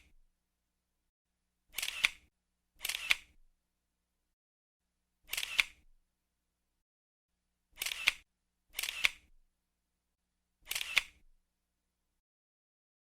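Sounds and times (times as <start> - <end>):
camera shutter click-clack: 1.8 - 2.2, 2.8 - 3.3, 5.3 - 5.8, 7.8 - 8.2, 8.8 - 9.2, 10.7 - 11.2.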